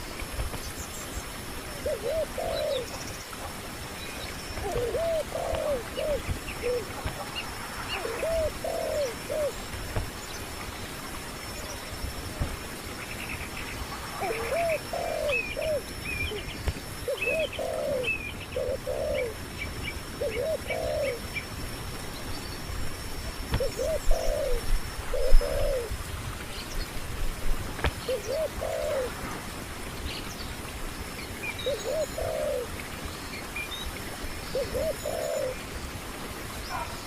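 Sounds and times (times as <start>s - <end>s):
birds calling: 0.0s - 10.6s, 12.9s - 21.5s, 23.5s - 25.9s, 27.9s - 29.2s, 31.2s - 35.7s.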